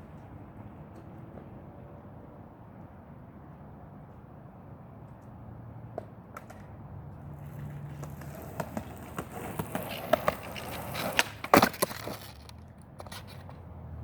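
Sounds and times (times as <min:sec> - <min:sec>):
skateboard rolling on pavement: 0:05.8 - 0:14.0
skateboard clattering on ground: 0:05.9 - 0:13.6
skateboard wheel clicks: 0:07.3 - 0:13.6.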